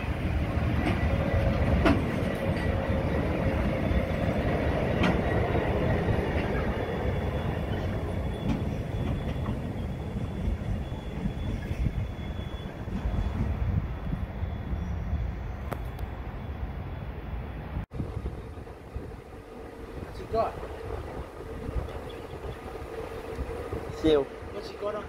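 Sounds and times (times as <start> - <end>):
diesel locomotive passing: 0.0 - 25.0
freight train rumbling past: 0.0 - 25.0.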